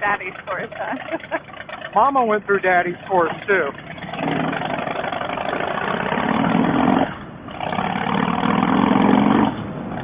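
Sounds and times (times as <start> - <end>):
motorcycle engine pulling under throttle: 2.8 - 10.0.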